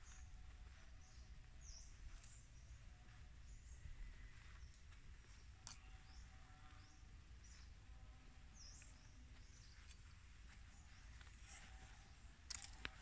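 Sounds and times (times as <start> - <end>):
bird calls and chirps: 0.0 - 13.0.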